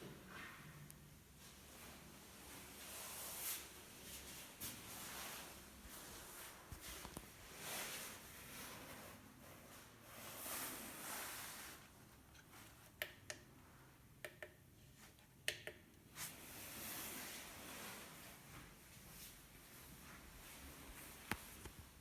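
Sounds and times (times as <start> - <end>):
sharp clicks and taps: 14.2 - 14.6, 15.4 - 15.8.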